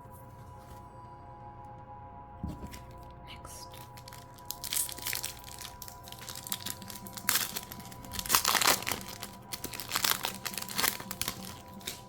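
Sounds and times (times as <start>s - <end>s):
foil wrapper crinkling and tearing: 2.6s - 12.0s.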